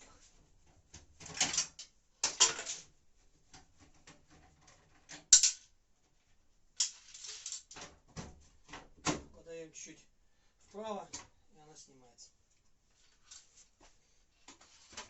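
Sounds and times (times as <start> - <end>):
metal parts scraping and rattling: 5.3 - 5.6, 6.8 - 7.8.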